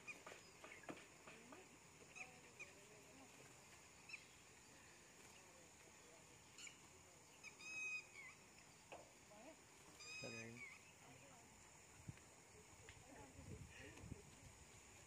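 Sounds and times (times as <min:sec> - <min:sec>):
faint bird chirps: 0:00.0 - 0:03.3, 0:03.9 - 0:09.0, 0:09.9 - 0:11.4
bird call: 0:07.4 - 0:08.4, 0:10.0 - 0:11.0.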